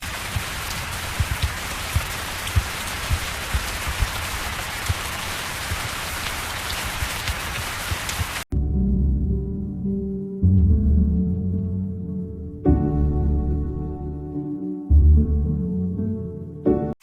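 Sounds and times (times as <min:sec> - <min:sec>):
steady rain hiss: 0:00.0 - 0:08.5.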